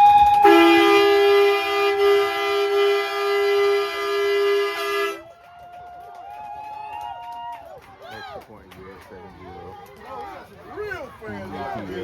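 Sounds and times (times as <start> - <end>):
low two-note horn blast: 0.4 - 5.2.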